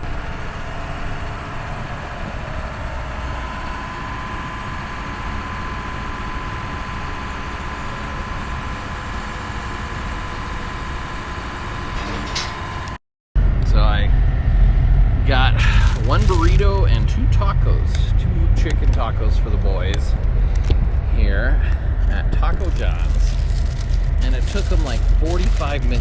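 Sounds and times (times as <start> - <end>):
faint steady whine: 0.0 - 26.0
truck road and engine noise: 0.0 - 26.0.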